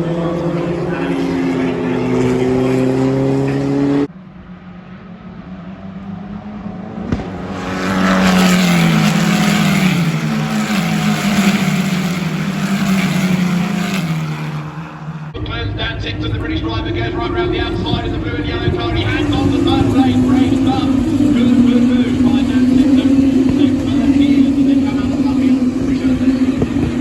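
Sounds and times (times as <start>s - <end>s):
racing car passing by: 0.0s - 15.4s
racing car engines: 0.0s - 27.0s.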